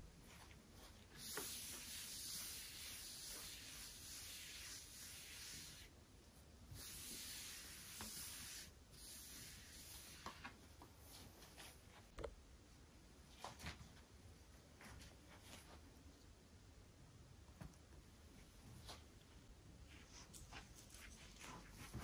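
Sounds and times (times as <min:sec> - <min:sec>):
scrubbing on a surface: 0:00.3 - 0:05.9.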